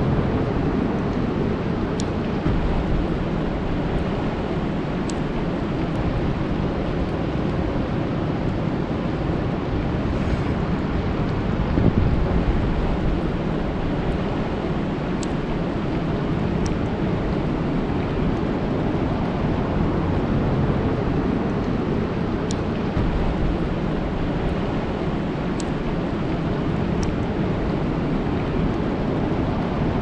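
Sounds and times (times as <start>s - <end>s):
rain falling on a lake: 0.1s - 10.0s, 11.1s - 30.0s
faint high ticks: 25.5s - 26.4s.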